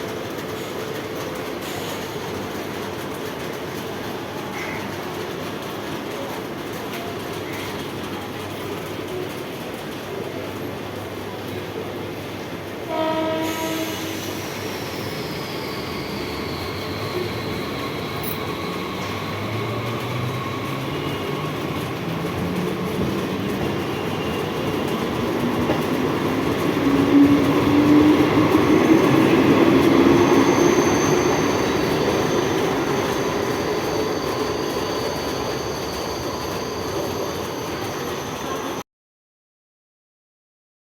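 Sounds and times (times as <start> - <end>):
wheels rumbling on rails: 0.0 - 38.8
train horn blast: 12.9 - 14.4.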